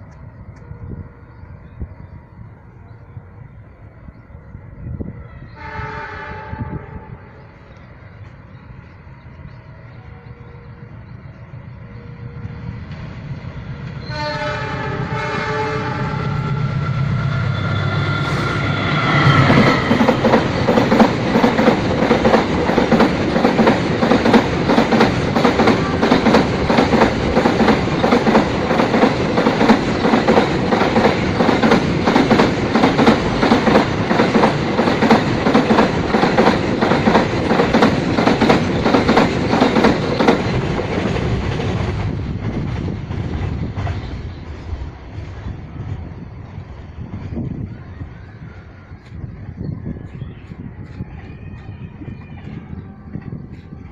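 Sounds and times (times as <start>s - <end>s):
train engine rumble: 0.0s - 53.9s
train horn: 5.3s - 7.4s, 14.0s - 19.5s, 25.6s - 26.4s
train wheels clattering on rails: 17.6s - 44.6s.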